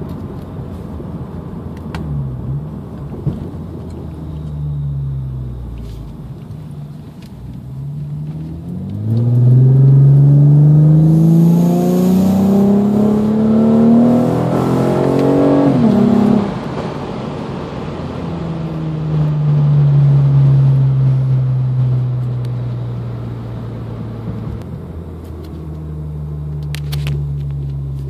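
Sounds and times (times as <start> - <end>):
engine low drone: 0.0 - 28.0
car engine revving high: 7.7 - 18.0.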